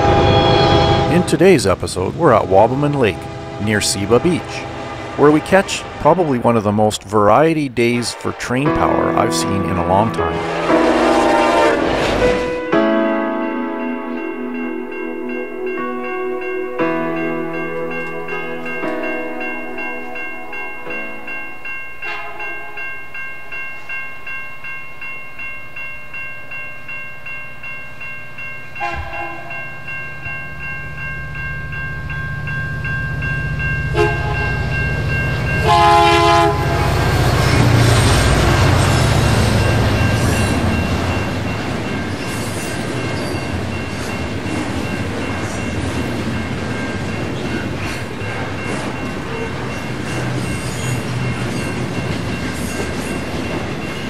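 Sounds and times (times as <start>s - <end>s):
locomotive horn blasts: 0.0s - 1.4s, 2.4s - 6.3s, 8.0s - 12.8s, 28.8s - 29.6s, 33.9s - 34.7s, 35.6s - 37.1s
train wheels rumbling on rails: 0.0s - 12.8s, 28.7s - 54.0s
railroad crossing bell ringing: 0.0s - 54.0s.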